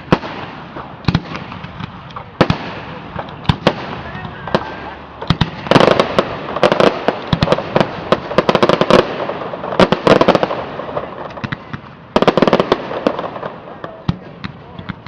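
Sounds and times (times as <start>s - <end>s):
fireworks popping and crackling: 0.0s - 15.0s.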